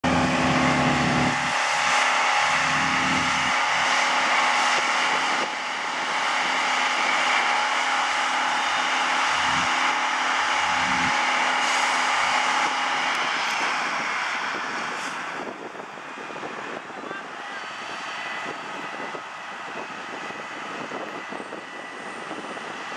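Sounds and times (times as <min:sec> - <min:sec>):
high pump whine: 0:00.0 - 0:22.9
truck engine: 0:00.0 - 0:22.9
water cannon rushing: 0:00.1 - 0:15.0.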